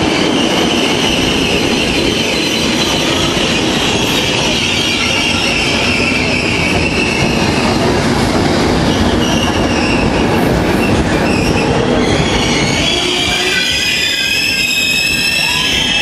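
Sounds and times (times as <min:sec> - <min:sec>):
train wheels rumbling on rail: 0:00.0 - 0:16.0
high-pitched wheel squeal: 0:10.8 - 0:16.0.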